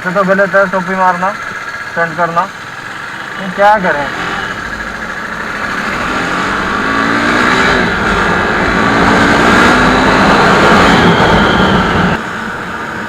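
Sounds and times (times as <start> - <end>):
motorcycle engine accelerating: 0.0 - 13.0
wind and road noise: 0.0 - 13.0.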